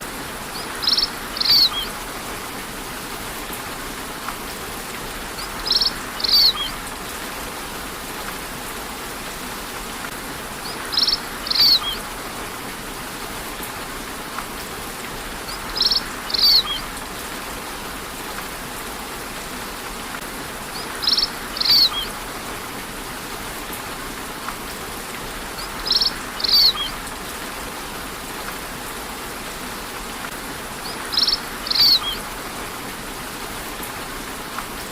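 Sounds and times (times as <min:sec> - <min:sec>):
steady rainfall: 0:00.0 - 0:34.9
bird chirping: 0:00.6 - 0:01.9, 0:05.4 - 0:06.8, 0:10.6 - 0:12.0, 0:15.5 - 0:16.9, 0:20.8 - 0:22.1, 0:25.6 - 0:27.0, 0:30.8 - 0:32.2.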